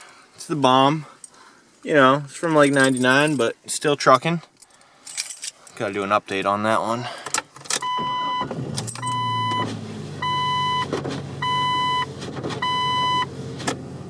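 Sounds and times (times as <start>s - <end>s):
dashboard warning chime beeping: 7.8s - 13.3s.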